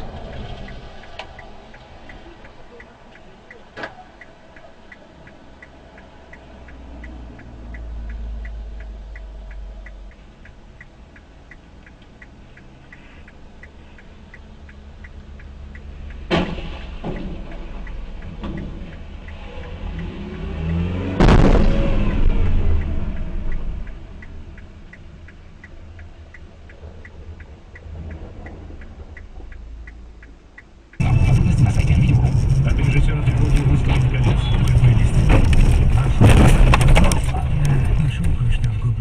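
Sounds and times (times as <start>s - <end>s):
car indicator relay clicking: 0.0s - 20.9s, 21.8s - 38.8s
low rumble of car: 0.0s - 39.0s
loud bang: 21.2s - 23.9s, 31.0s - 37.9s.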